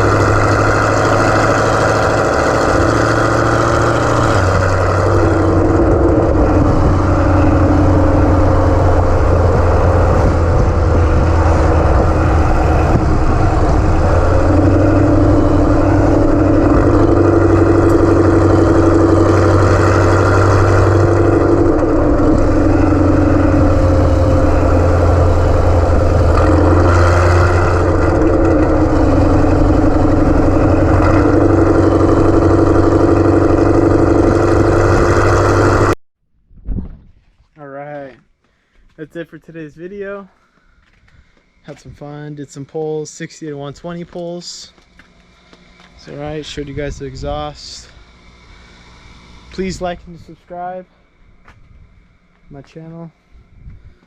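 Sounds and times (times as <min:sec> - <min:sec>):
car engine running at low revs: 0:00.0 - 0:36.0.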